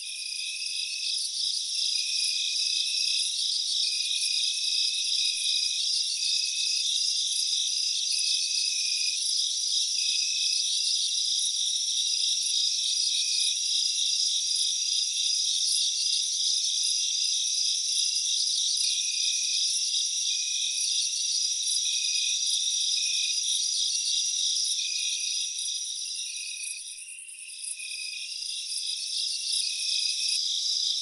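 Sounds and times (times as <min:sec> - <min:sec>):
crickets trilling: 0:13.4 - 0:31.0.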